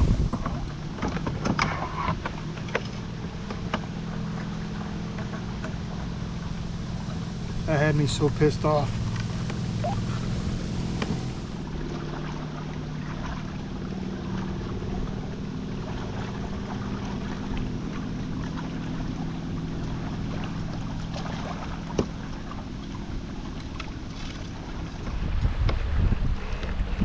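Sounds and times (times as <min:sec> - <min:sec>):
wind on microphone: 0:00.0 - 0:02.2, 0:24.5 - 0:27.0
boat motor humming: 0:00.0 - 0:27.0.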